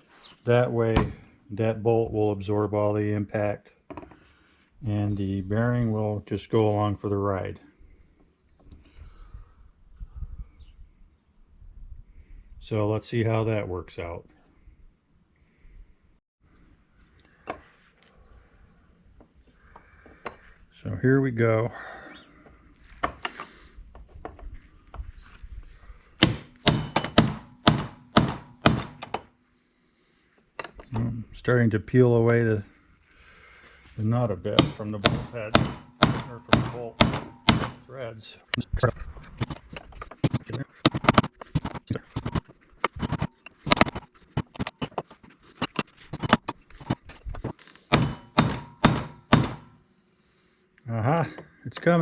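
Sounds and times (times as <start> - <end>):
hammer striking metal chisel: 26.2 - 29.3, 34.4 - 37.9, 39.4 - 47.0, 47.9 - 49.8.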